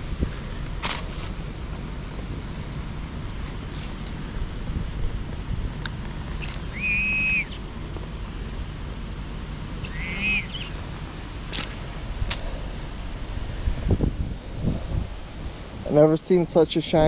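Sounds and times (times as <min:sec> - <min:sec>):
wind noise: 0:00.0 - 0:08.6, 0:09.7 - 0:16.0
sharp clicks: 0:06.3 - 0:07.6.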